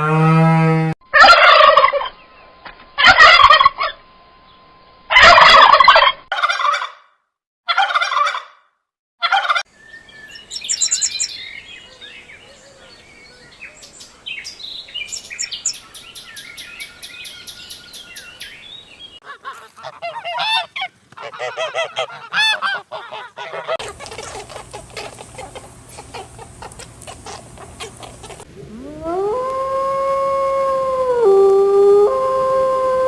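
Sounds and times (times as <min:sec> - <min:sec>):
turkey gobbling: 0:01.2 - 0:02.1, 0:05.1 - 0:07.0, 0:07.7 - 0:08.5, 0:19.2 - 0:29.6
small birds chirping: 0:09.7 - 0:19.8, 0:23.8 - 0:29.7.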